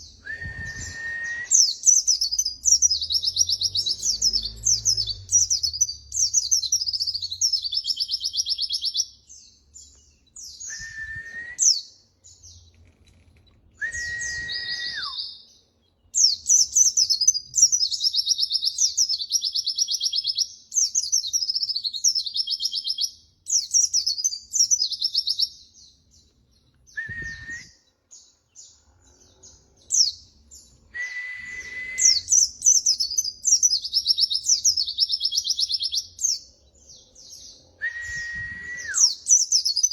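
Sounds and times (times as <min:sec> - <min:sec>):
long low bird whistles: 0:00.0 - 0:09.0, 0:10.3 - 0:11.9, 0:13.7 - 0:15.5, 0:26.9 - 0:28.0, 0:29.0 - 0:36.4, 0:37.2 - 0:39.9.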